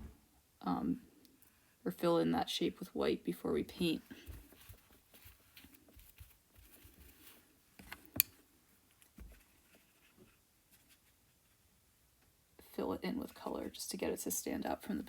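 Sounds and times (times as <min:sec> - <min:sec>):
paintbrush brushing and dabbing: 0:03.8 - 0:08.0, 0:08.7 - 0:11.8.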